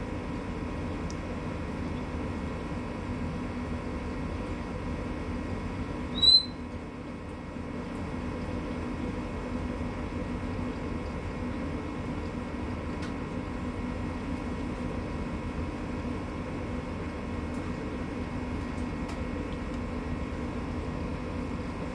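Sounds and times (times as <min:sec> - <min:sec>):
background hum: 0:00.0 - 0:21.9
bird chirp: 0:06.2 - 0:06.6.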